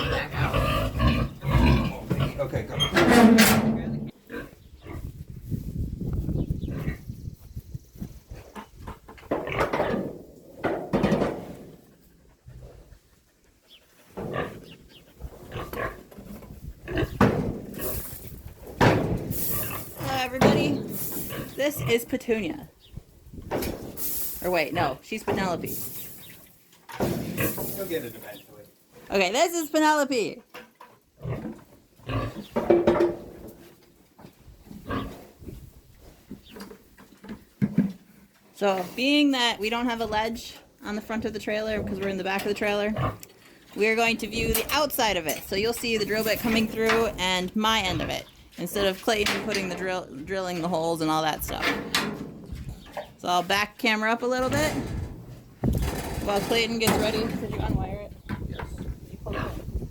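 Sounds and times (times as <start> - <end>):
pig grunting: 0.0 - 5.1, 14.2 - 18.2, 31.2 - 32.5, 34.8 - 35.4, 59.2 - 59.8.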